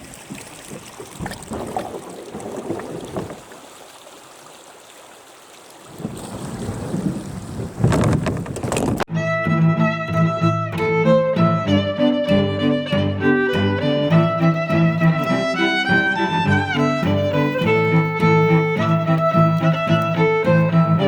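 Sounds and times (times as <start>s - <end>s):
wind noise on microphone: 0.0s - 3.5s, 5.9s - 9.1s, 14.1s - 21.0s
water splashing and sloshing: 0.0s - 9.1s, 14.1s - 21.0s
violin music: 9.1s - 21.0s.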